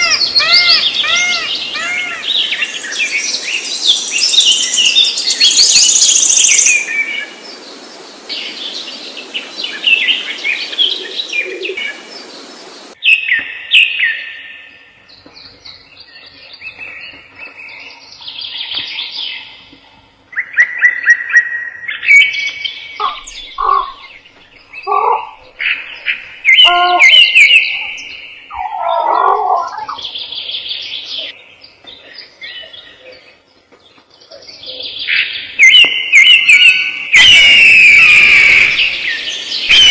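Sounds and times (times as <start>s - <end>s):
songbirds chirping and singing: 0.0s - 39.9s
steady background hiss: 0.2s - 13.0s.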